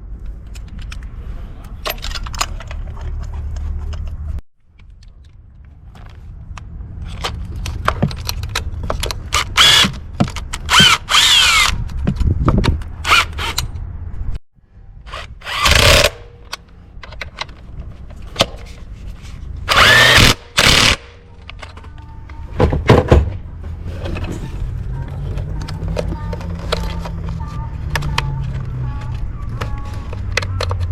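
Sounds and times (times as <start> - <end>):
power drill spinning: 9.4 - 9.9, 10.7 - 11.8, 15.1 - 16.2, 19.7 - 21.0.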